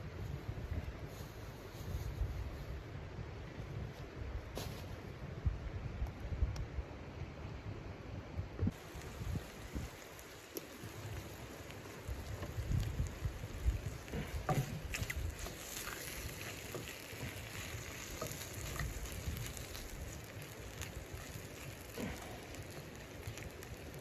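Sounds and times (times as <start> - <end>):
small pops of frying: 8.6 - 24.0
chicken sizzling in a frying pan: 8.7 - 24.0
wooden spatula clicking and scraping: 10.0 - 24.0.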